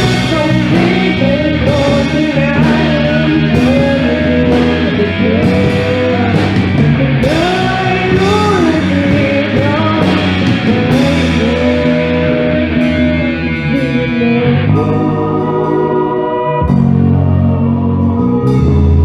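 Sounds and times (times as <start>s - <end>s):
drum and cymbal hits: 0.0s - 14.0s
bass and guitar: 0.0s - 19.0s
person singing: 0.0s - 19.0s.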